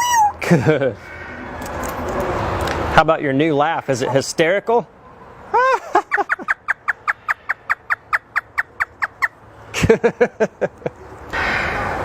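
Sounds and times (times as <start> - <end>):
parrot imitating laugh: 5.6 - 9.3.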